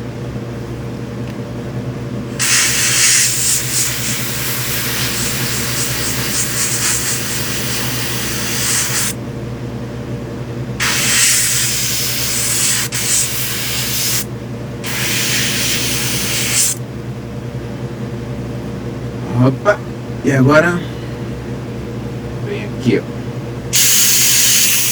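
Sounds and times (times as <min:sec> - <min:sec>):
steady low hum: 0:00.0 - 0:24.9
airbrush spraying hiss: 0:02.4 - 0:09.2, 0:10.8 - 0:16.8, 0:23.7 - 0:24.9.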